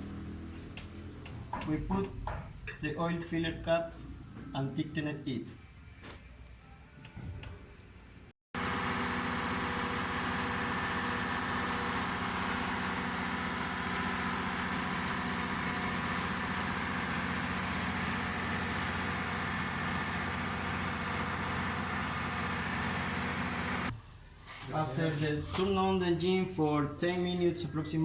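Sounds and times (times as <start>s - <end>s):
diesel engine running: 8.6s - 24.0s.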